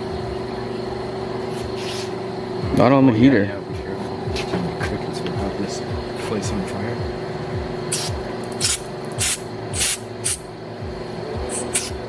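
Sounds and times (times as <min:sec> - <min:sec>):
steady hum: 0:00.0 - 0:12.0
compressed air blasts from blow gun: 0:07.9 - 0:10.4, 0:11.5 - 0:12.0.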